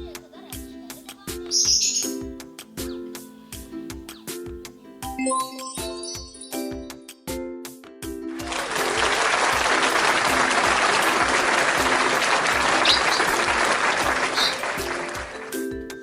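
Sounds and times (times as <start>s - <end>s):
background music: 0.0s - 16.0s
applause: 8.3s - 15.7s.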